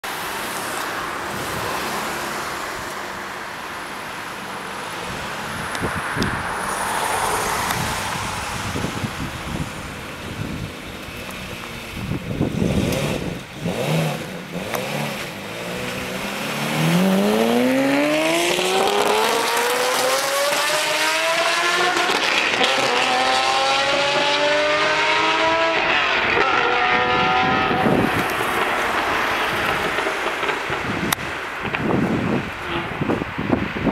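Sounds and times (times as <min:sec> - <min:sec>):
car engine revving and accelerating: 0:11.2 - 0:31.1.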